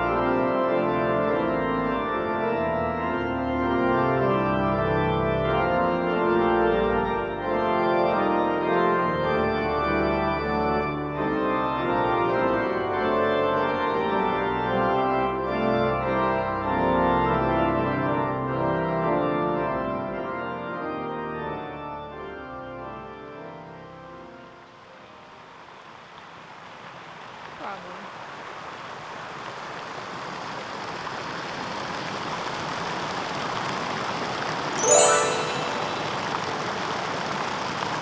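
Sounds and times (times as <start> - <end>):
pipe organ chords: 0.0 - 24.3.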